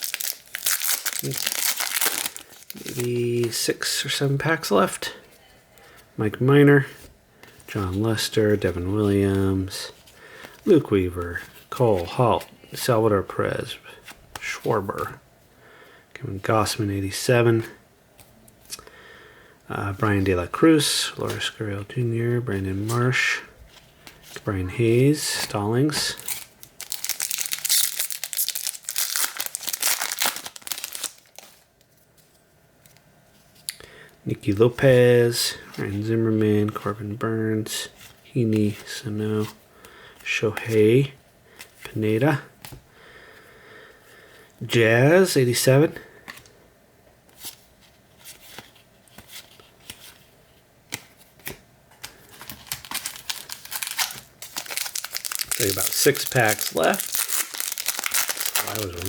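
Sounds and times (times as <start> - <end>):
foil wrapper tearing and crinkling: 0.0 - 3.1, 26.1 - 31.6, 52.4 - 59.0.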